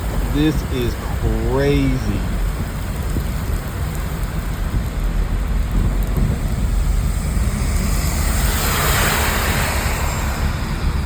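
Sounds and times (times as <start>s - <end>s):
water rushing and hissing: 0.0s - 4.8s
car engine low rumble: 0.0s - 11.0s.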